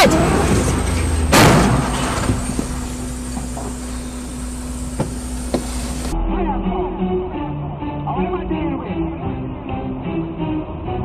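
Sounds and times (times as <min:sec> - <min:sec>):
loud collision bang: 0:00.0 - 0:03.0
low vehicle hum: 0:00.0 - 0:10.4.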